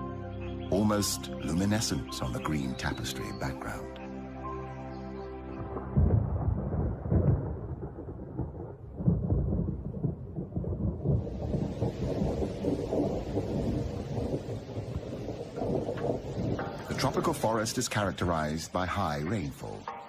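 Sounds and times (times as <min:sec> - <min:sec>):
thunder rumbling: 0:05.6 - 0:18.6
steady rain hiss: 0:08.4 - 0:20.0.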